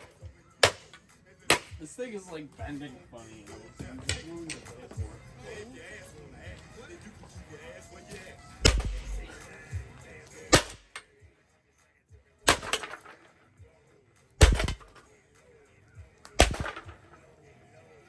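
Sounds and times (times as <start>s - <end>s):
hard blows smashing a fan: 0.0s - 1.9s, 8.6s - 9.5s, 10.5s - 11.0s, 12.5s - 13.3s, 14.4s - 15.0s, 16.4s - 17.1s
short rattle: 16.4s - 17.0s.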